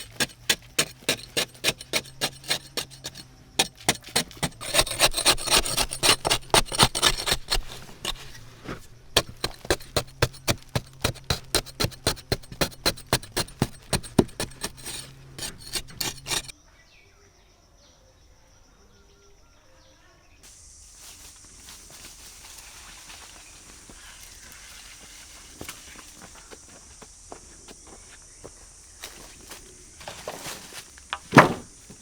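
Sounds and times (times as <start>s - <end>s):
hand tool rasping wood: 0.0s - 16.5s.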